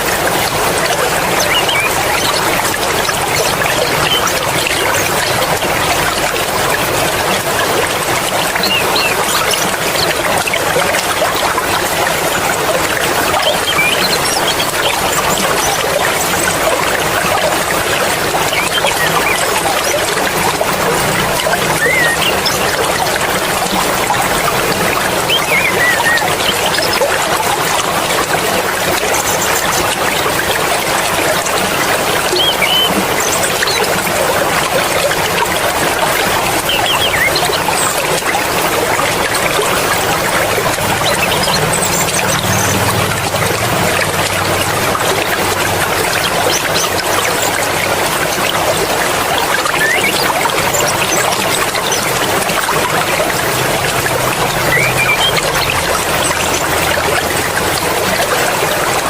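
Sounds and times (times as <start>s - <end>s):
mountain stream flowing: 0.0s - 59.0s.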